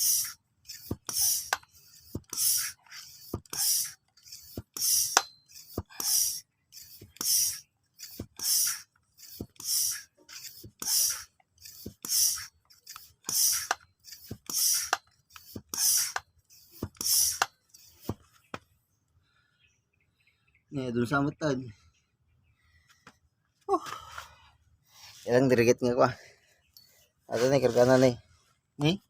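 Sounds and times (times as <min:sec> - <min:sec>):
hand air pump hissing and clicking: 0:00.0 - 0:18.3, 0:27.3 - 0:28.2.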